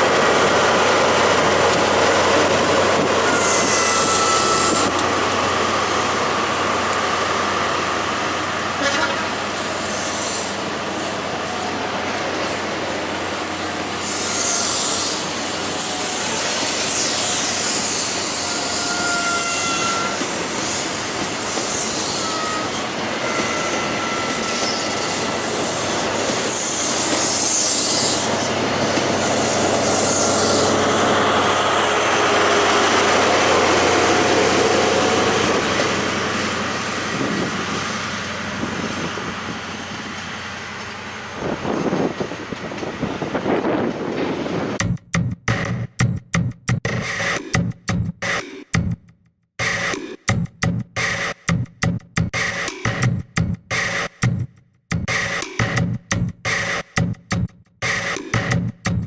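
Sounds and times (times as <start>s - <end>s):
train rumble on rails: 0.0s - 46.1s
steel wheels squealing: 3.2s - 5.0s, 9.6s - 11.7s, 14.0s - 28.5s, 29.2s - 31.0s.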